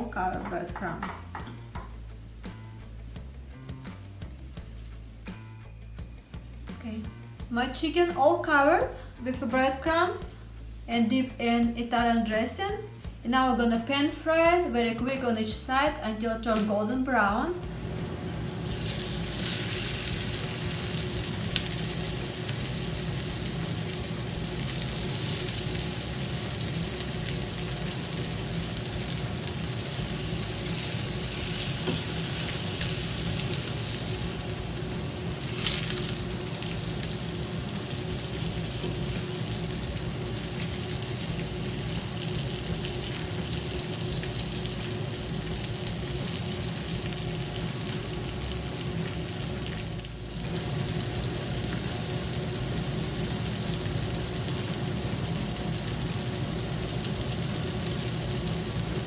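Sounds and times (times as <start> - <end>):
chicken frying in oil: 18.4 - 59.0.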